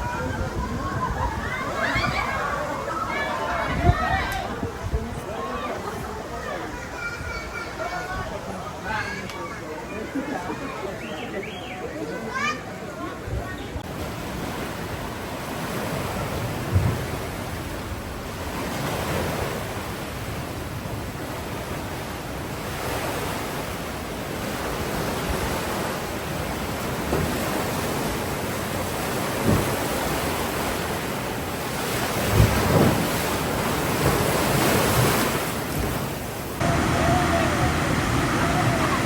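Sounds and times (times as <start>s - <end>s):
wind on microphone: 0.0s - 5.3s
ocean surf breaking: 0.0s - 13.0s, 13.8s - 39.0s.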